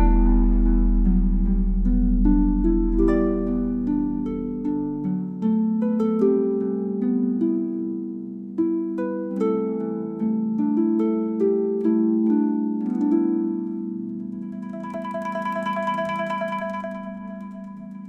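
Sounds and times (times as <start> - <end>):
held low tone: 0.0 - 5.4
guzheng plucked melody: 0.0 - 18.0.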